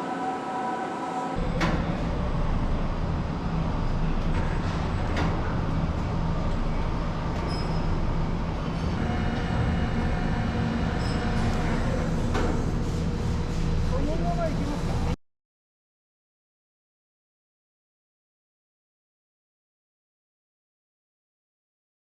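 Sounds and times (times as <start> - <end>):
train rumbling on rails: 0.0 - 15.2.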